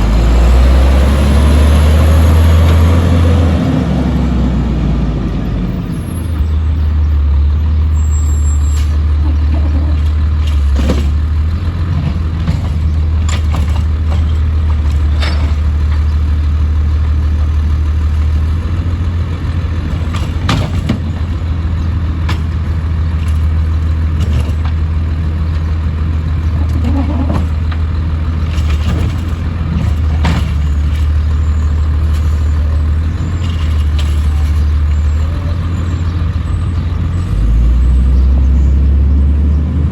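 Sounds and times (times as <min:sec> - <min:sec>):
garbage truck engine droning: 0:00.0 - 0:39.9
knocks and clanks: 0:08.8 - 0:37.8.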